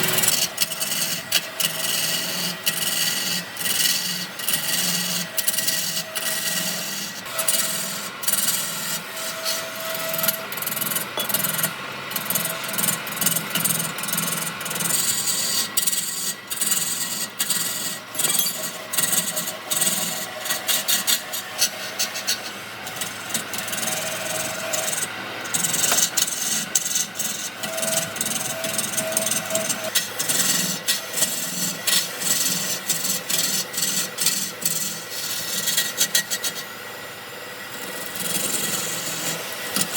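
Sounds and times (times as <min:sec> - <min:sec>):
hand tool scraping wood: 0:17.4 - 0:35.7.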